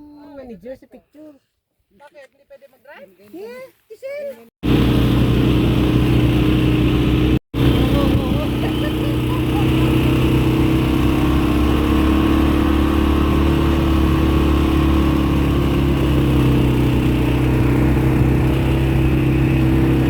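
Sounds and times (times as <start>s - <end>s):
atv engine running: 4.6s - 20.0s.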